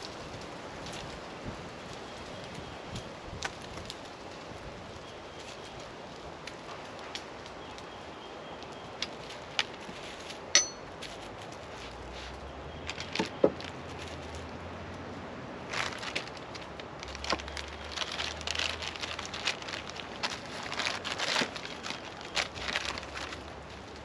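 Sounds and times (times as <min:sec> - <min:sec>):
clink: 0:10.5 - 0:10.9
packaging crackling: 0:12.8 - 0:14.5, 0:15.6 - 0:24.0.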